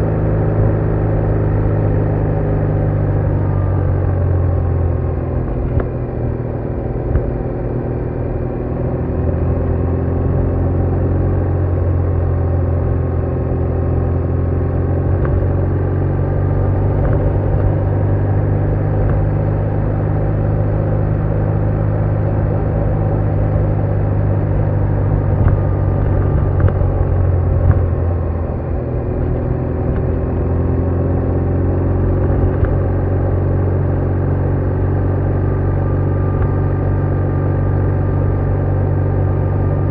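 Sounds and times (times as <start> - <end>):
motorcycle engine rumbling: 13.0 - 39.9.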